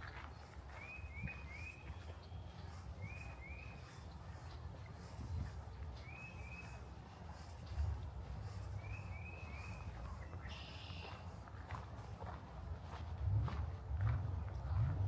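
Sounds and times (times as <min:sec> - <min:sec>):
bird chirping: 0:00.8 - 0:04.2, 0:08.4 - 0:11.2.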